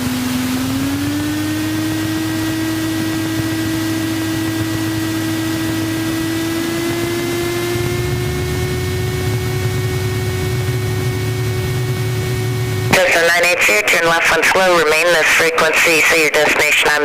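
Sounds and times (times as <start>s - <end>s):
low engine rumble: 0.0s - 16.2s
aircraft engine whine: 0.0s - 17.0s
intercom hiss: 12.9s - 17.0s.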